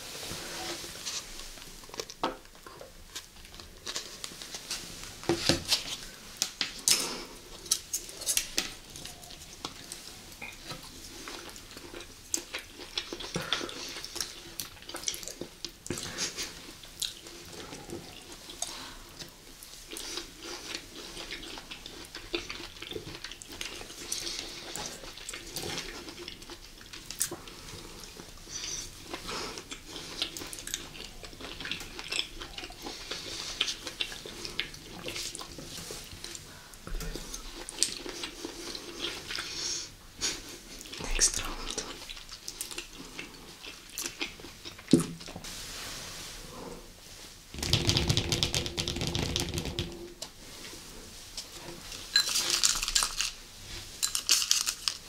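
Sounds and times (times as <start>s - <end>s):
chewing and mouth noises: 5.7s - 45.4s.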